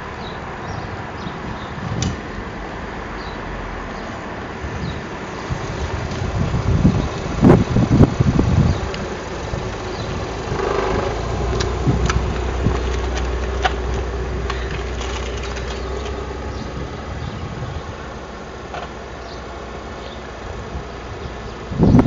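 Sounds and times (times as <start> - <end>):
wind buffeting microphone: 0.0 - 22.0
car engine running: 5.2 - 22.0.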